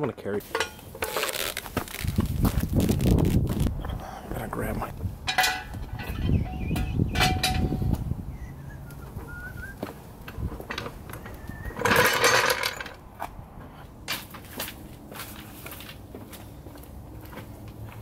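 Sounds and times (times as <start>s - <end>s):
tools clattering: 0.4s - 1.4s, 5.2s - 8.0s, 11.7s - 13.0s
tools being handled: 0.4s - 2.3s, 5.2s - 7.9s, 9.8s - 13.0s
low rattling rumble: 4.4s - 13.6s.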